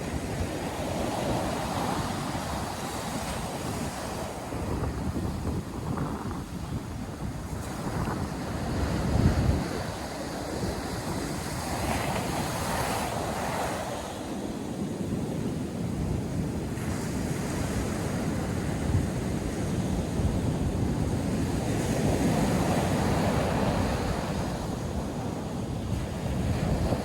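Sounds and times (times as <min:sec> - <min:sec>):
wind buffeting microphone: 0:00.0 - 0:27.0
surf breaking on beach: 0:20.9 - 0:27.0.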